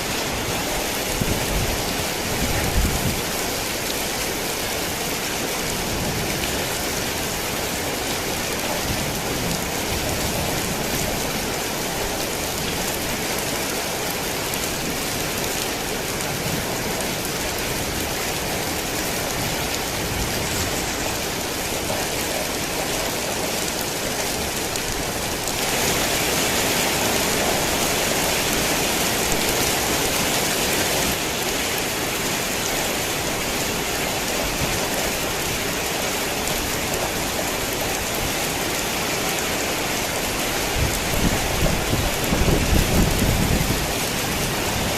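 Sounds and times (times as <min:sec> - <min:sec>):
heavy rain: 0:00.0 - 0:44.9.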